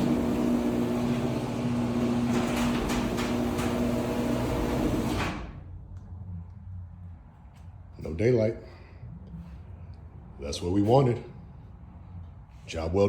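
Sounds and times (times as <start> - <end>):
garage door motor hum: 0.0 - 5.7.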